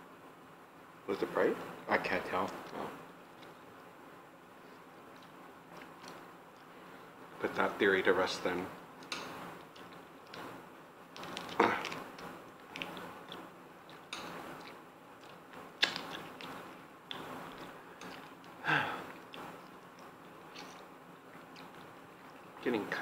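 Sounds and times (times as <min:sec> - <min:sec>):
people chewing and biting food: 0:09.6 - 0:22.6.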